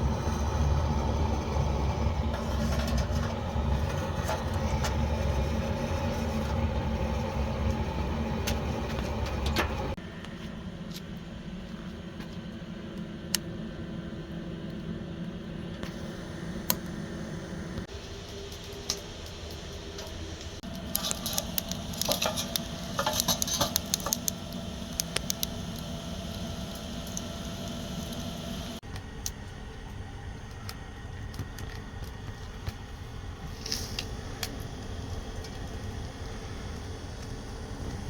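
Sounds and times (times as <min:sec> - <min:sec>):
low hum: 0:00.0 - 0:38.0
quick crackles and clicks: 0:18.2 - 0:29.5.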